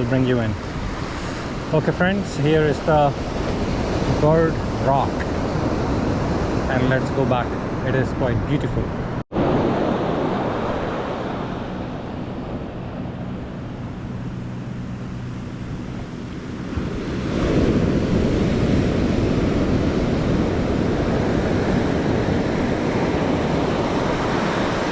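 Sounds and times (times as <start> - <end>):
wind buffeting microphone: 0.0 - 24.9
surf breaking on beach: 9.3 - 14.2, 15.7 - 24.9.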